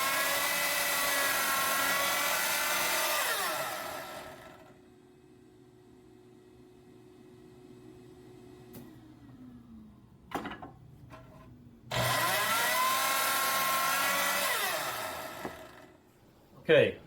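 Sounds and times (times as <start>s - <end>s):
power saw running: 0.0s - 4.8s, 11.9s - 16.0s.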